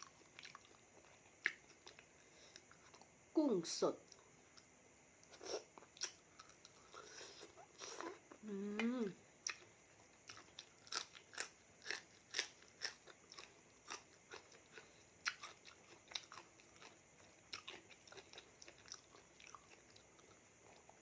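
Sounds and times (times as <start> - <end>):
chewing mouth sounds: 0.0 - 3.1, 9.4 - 21.0.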